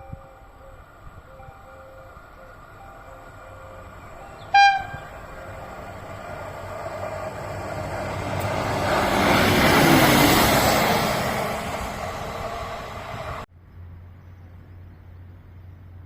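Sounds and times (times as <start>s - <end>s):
train wheels and engine rumbling: 0.0s - 16.0s
train horn blast: 1.3s - 6.3s.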